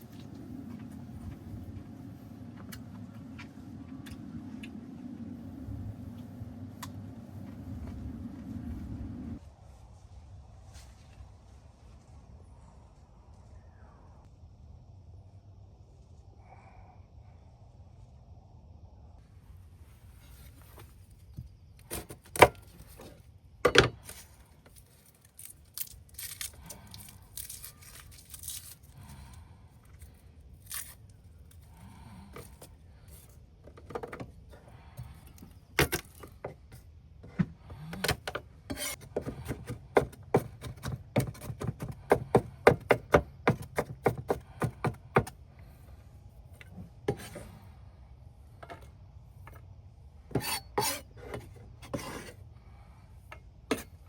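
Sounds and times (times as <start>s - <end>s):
rubbing and scraping: 37.9s - 45.3s, 50.3s - 52.4s.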